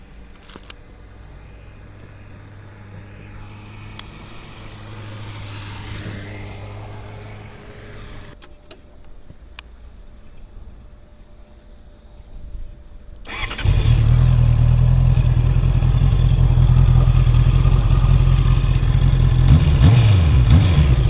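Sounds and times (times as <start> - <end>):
low engine hum: 1.0 - 8.4, 13.3 - 21.0
vehicle passing by: 1.1 - 8.4, 13.3 - 21.0
sharp clicks: 13.3 - 13.8.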